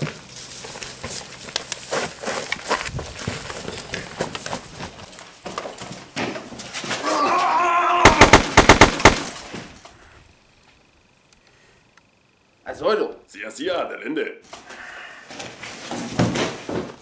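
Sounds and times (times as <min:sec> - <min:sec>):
scuffling and knocks: 0:00.0 - 0:07.2, 0:15.3 - 0:17.0
man's strangled cry: 0:07.0 - 0:08.3
sharp cracks like gunfire: 0:08.0 - 0:09.5.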